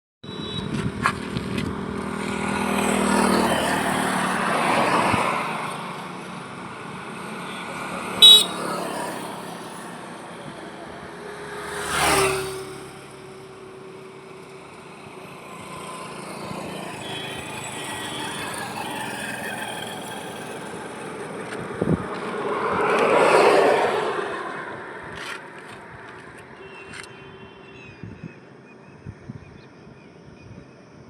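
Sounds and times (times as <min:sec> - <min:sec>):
highway traffic passing: 0:00.3 - 0:29.1
vehicle swishing past: 0:00.9 - 0:27.1
car horn toot: 0:07.5 - 0:09.1, 0:26.6 - 0:27.9.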